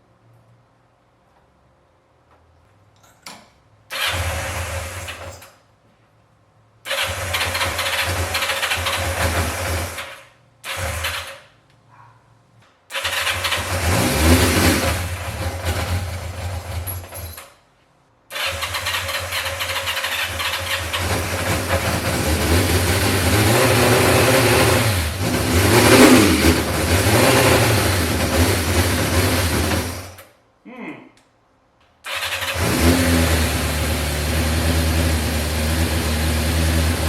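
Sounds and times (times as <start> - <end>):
motorcycle engine revving: 3.9 - 5.3, 6.9 - 11.4, 12.9 - 17.2, 18.3 - 30.2, 32.1 - 37.0.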